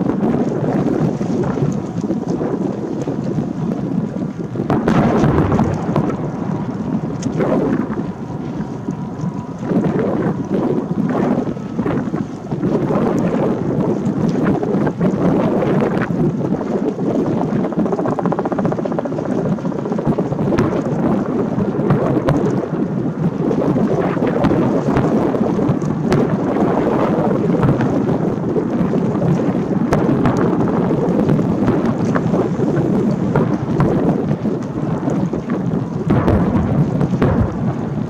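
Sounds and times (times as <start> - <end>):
fireworks booming: 4.6 - 14.6, 24.1 - 28.9, 33.1 - 38.0
sharp firework cracks: 36.1 - 38.0.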